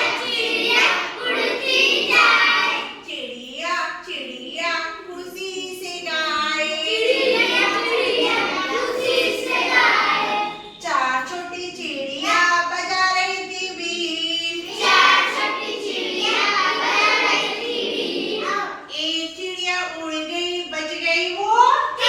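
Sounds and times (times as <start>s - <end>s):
children singing in unison: 0.0s - 3.0s, 6.6s - 10.8s, 14.6s - 18.9s.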